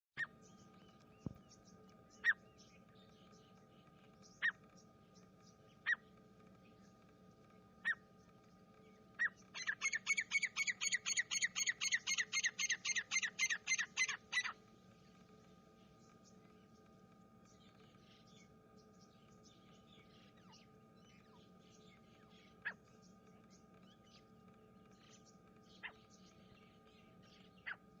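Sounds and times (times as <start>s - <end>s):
faint steady hum: 0.2s - 28.0s
francolin calling: 9.2s - 14.6s.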